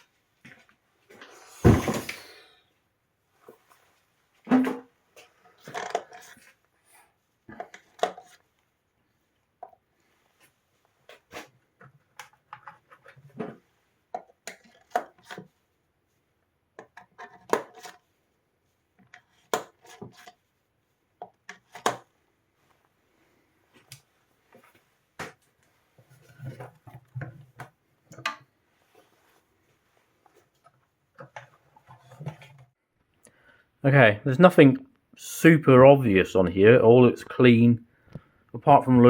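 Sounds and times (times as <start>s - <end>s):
parts and tools clattering: 1.6s - 2.3s, 5.5s - 6.5s.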